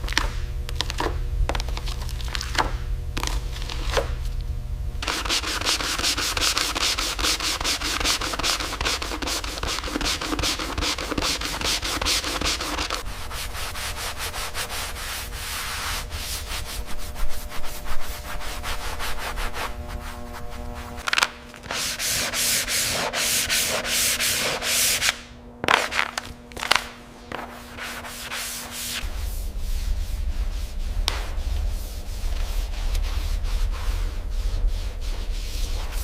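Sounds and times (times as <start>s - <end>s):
steady low hum: 0.0s - 36.0s
sanding strokes: 5.0s - 21.0s, 21.6s - 25.2s, 27.4s - 36.0s.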